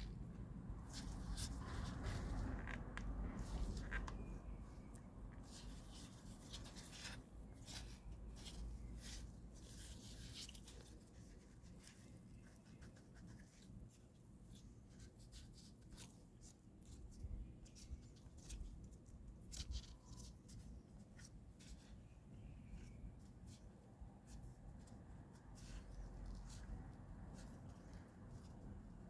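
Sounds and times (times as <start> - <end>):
scraping and rubbing of hand work: 0.0 - 29.0.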